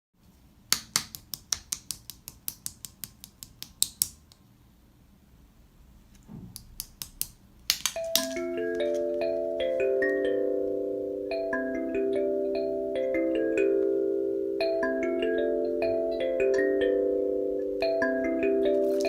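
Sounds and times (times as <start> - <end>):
glockenspiel-like music notes: 8.0 - 19.0.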